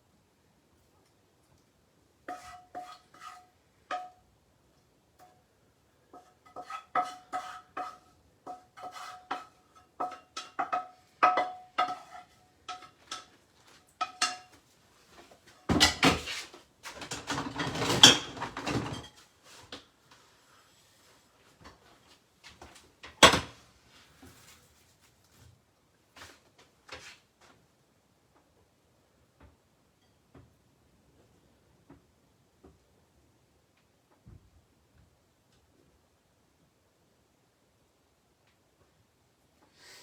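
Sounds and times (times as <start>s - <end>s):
metal utensil clinking on pan: 2.3s - 4.2s, 6.2s - 13.3s, 14.0s - 14.6s.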